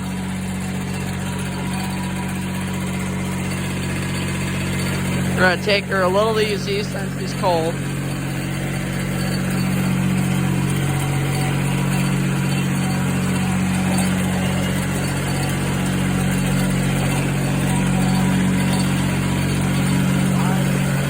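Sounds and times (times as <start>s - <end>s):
diesel tractor engine running: 0.0s - 21.0s.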